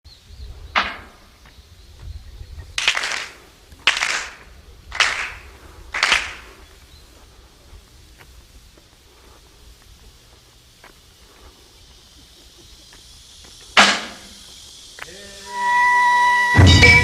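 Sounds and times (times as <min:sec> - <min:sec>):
footsteps on gravel: 0:02.8 - 0:13.7.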